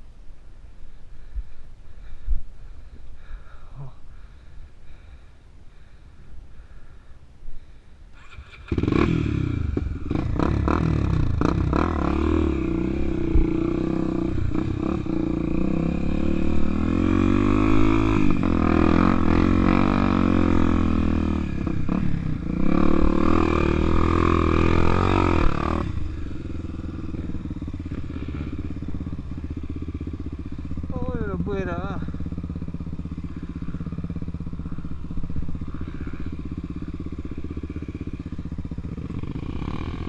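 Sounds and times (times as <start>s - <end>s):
motorcycle engine revving: 8.1s - 40.0s.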